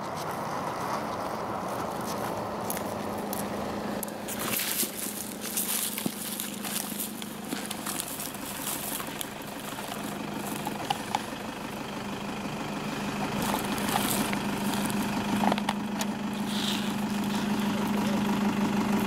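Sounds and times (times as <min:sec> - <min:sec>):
vehicle engine idling: 0:00.0 - 0:19.0
sharp clicks and scuffs: 0:13.2 - 0:17.8.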